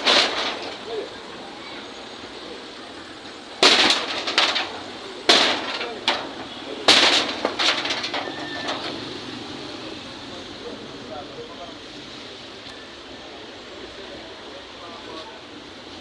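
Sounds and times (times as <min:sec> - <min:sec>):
knocks and rattling: 0:00.0 - 0:01.1, 0:03.6 - 0:09.1
loud demolition bangs: 0:00.0 - 0:01.1, 0:03.3 - 0:09.4.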